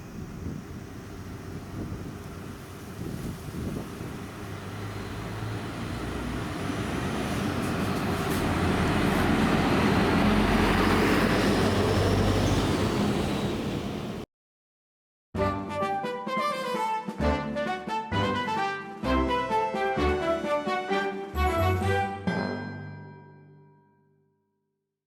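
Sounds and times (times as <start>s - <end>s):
bus passing by: 0.0s - 14.3s.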